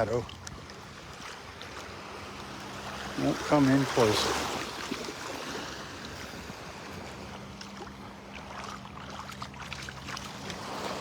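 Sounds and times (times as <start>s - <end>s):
shallow seawater lapping and splashing: 0.0s - 11.0s.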